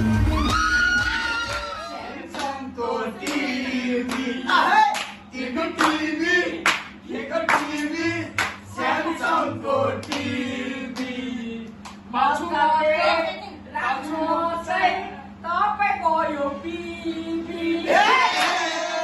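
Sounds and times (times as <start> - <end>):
group of people singing: 1.2 - 15.3, 16.2 - 19.0
hand clapping: 2.3 - 2.6, 3.2 - 4.3, 4.9 - 5.2, 5.8 - 6.0, 6.6 - 8.6, 10.0 - 10.3.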